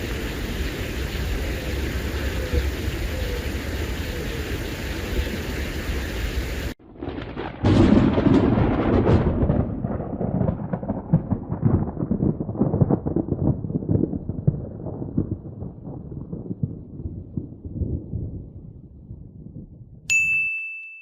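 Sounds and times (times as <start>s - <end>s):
steady rain hiss: 0.0s - 6.8s
thunder clap rolling and crackling: 0.0s - 20.1s.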